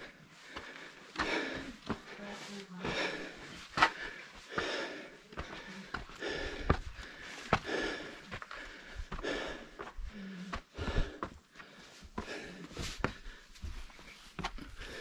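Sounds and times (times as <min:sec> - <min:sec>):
footsteps: 0:00.0 - 0:15.0
person breathing hard: 0:00.0 - 0:15.0
scuffs and knocks: 0:11.0 - 0:15.0.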